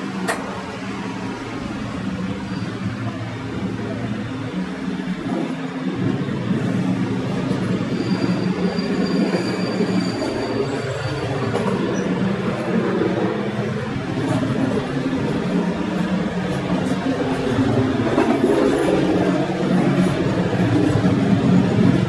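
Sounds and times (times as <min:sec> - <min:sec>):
train wheels rumbling on rails: 0:00.0 - 0:22.0
high wheel squeal: 0:02.0 - 0:03.3, 0:06.8 - 0:12.6.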